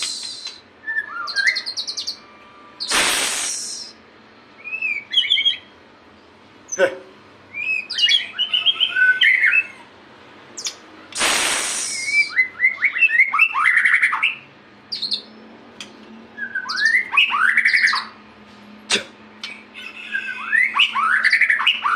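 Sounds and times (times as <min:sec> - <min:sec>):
bird singing whistled phrases: 0:00.0 - 0:02.2, 0:03.5 - 0:04.0, 0:04.6 - 0:05.7, 0:07.5 - 0:09.8, 0:11.8 - 0:15.3, 0:16.4 - 0:18.1, 0:20.1 - 0:21.9
harsh rasping burst: 0:02.9 - 0:03.8, 0:11.2 - 0:12.0.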